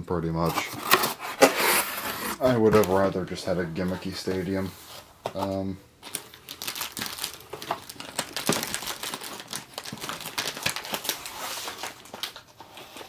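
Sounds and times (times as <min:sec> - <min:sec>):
plastic packaging crinkling: 0:05.4 - 0:13.0.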